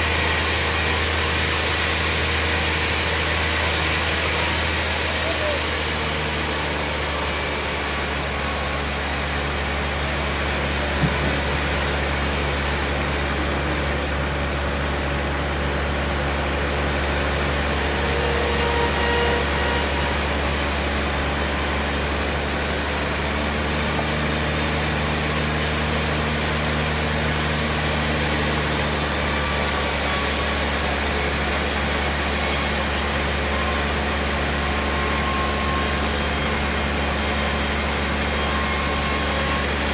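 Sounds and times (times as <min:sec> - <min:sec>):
sawmill machinery humming: 0:00.0 - 0:39.9
short knock: 0:10.8 - 0:11.7.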